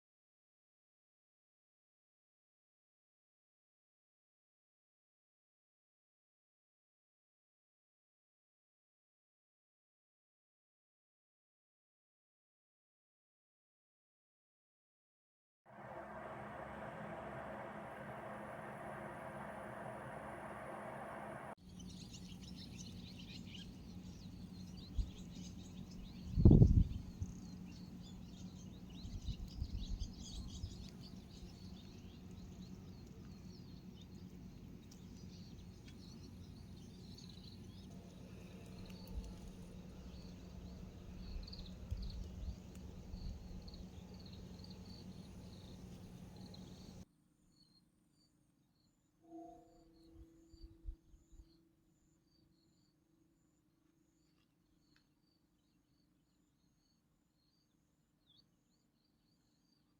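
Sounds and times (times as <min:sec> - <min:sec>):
soft low rumbles: 0:15.7 - 0:22.6, 0:24.3 - 0:47.0
steady low hum: 0:15.7 - 0:47.0
small birds chirping: 0:21.4 - 0:47.0.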